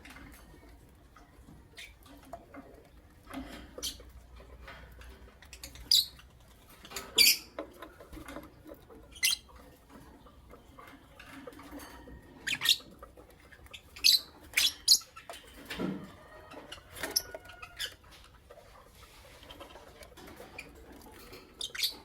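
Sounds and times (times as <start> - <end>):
lovebirds chirping: 5.4 - 7.6, 9.0 - 9.7, 12.3 - 15.5, 21.6 - 22.0
soft rustling and scratching: 15.2 - 22.0.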